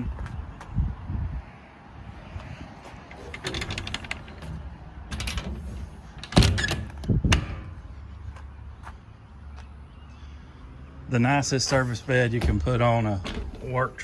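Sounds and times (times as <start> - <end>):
metal clicks and rattles: 3.1 - 7.8
truck door thudding shut: 11.7 - 14.0.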